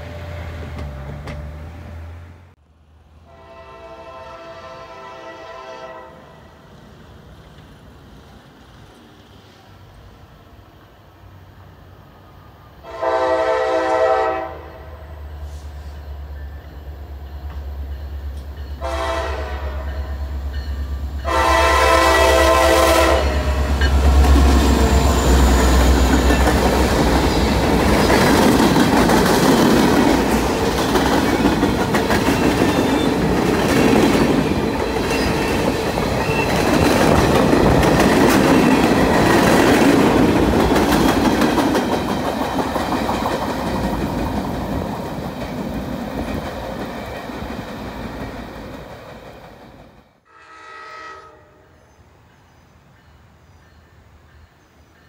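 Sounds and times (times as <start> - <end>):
locomotive air horn blasts: 3.3 - 6.5, 12.8 - 15.9, 18.8 - 20.3, 21.2 - 23.8, 50.2 - 51.8.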